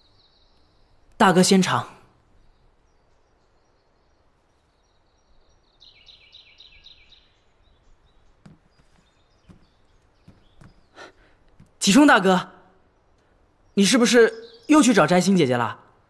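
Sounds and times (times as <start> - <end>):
faint high bird chirping: 0.0 - 15.9
soft taps: 8.3 - 10.9, 11.5 - 11.8.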